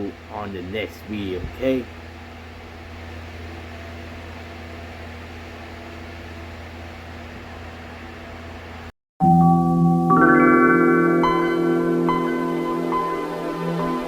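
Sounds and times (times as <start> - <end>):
fan humming and hissing: 0.0 - 8.9.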